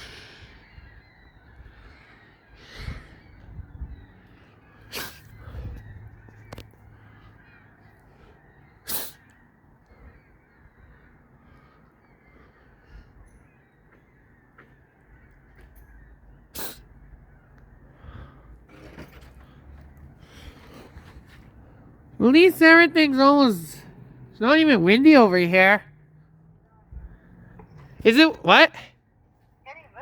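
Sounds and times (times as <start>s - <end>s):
crow cawing: 6.2s - 13.1s.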